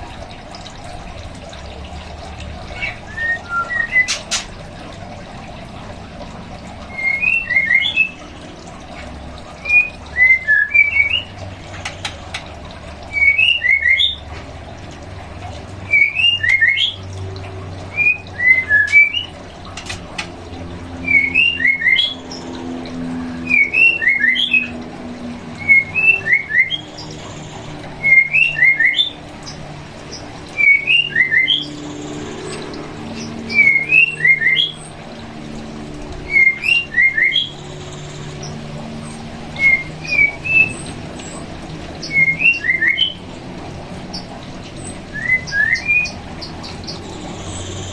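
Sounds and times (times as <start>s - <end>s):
bird whistling rising notes: 2.7s - 4.5s, 6.8s - 8.4s, 9.5s - 11.5s, 13.0s - 14.2s, 15.9s - 17.2s, 17.8s - 19.5s, 20.8s - 34.9s, 36.1s - 41.4s, 42.0s - 43.2s, 44.9s - 47.9s.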